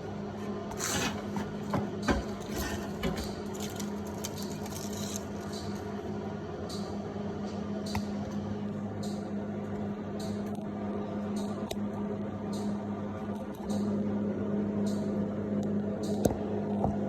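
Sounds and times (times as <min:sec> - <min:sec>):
steady low hum: 0:00.0 - 0:17.0
handling rustles: 0:00.4 - 0:05.8.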